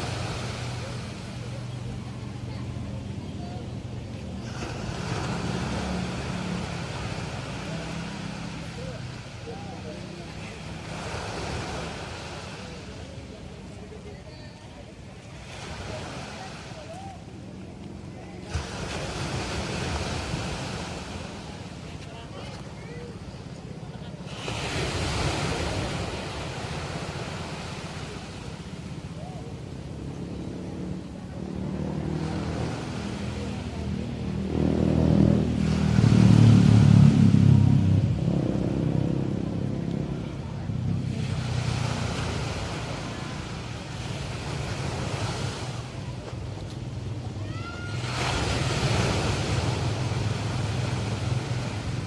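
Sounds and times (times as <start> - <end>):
surf breaking on beach: 0.0 - 1.8, 4.3 - 17.5, 18.3 - 23.3, 23.9 - 29.8, 30.7 - 52.0
low engine hum: 0.0 - 52.0
low rumble of sea: 0.0 - 52.0.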